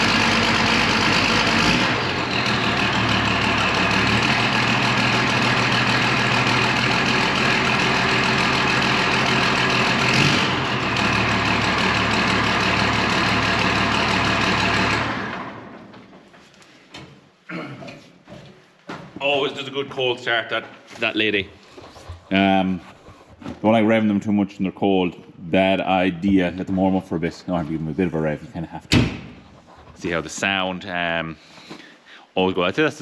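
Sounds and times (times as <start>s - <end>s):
tractor diesel engine running: 0.0s - 16.1s.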